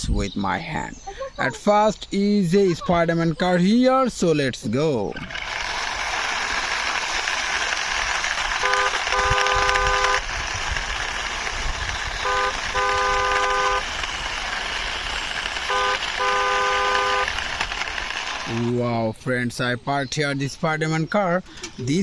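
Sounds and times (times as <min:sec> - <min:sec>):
steady rushing noise: 0:05.3 - 0:19.7
car horn honking: 0:08.6 - 0:10.2, 0:12.2 - 0:13.9, 0:15.6 - 0:17.4.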